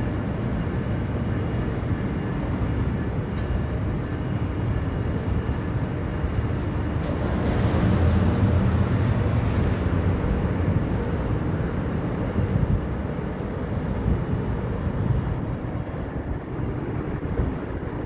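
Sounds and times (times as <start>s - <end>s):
passenger train rumbling: 0.0s - 18.0s.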